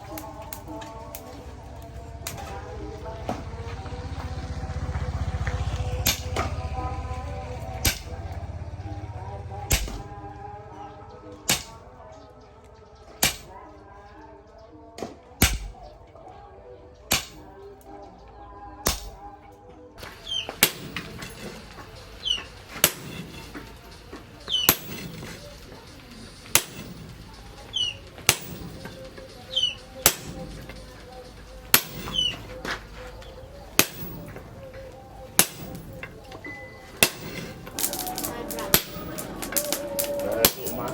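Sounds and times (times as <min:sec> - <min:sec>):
hammer striking steel: 0:05.9 - 0:06.6, 0:07.8 - 0:08.4, 0:09.7 - 0:10.1, 0:11.5 - 0:11.9, 0:13.2 - 0:13.5, 0:15.4 - 0:15.8, 0:17.1 - 0:17.5, 0:18.9 - 0:19.2, 0:20.0 - 0:40.9.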